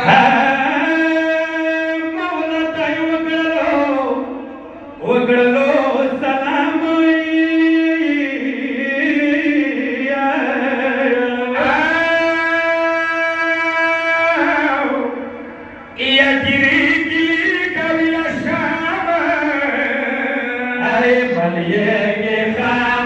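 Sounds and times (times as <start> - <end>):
man chanting a lament: 0.0 - 23.0.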